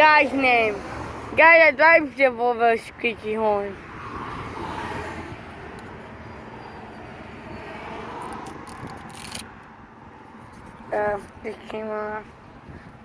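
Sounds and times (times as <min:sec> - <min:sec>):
road traffic passing: 0:00.0 - 0:13.0
sharp clicks: 0:08.2 - 0:09.7.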